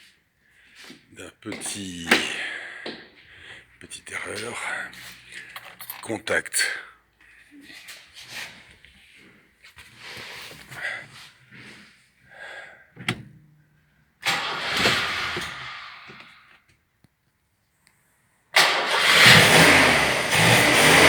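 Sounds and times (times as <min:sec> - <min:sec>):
short engine burst: 0:14.2 - 0:16.2, 0:18.6 - 0:21.0
car engine starting and running: 0:14.2 - 0:16.3, 0:18.6 - 0:21.0.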